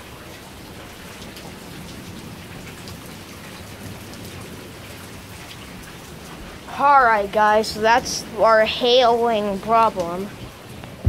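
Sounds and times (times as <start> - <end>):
steady rain: 0.0 - 11.0
hail ticks: 5.5 - 11.0.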